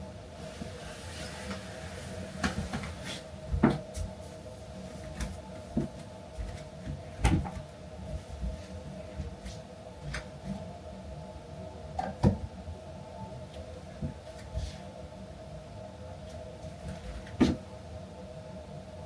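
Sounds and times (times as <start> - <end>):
steady low hum: 0.0 - 19.0
household knocks and clunks: 2.4 - 3.9, 17.3 - 17.6.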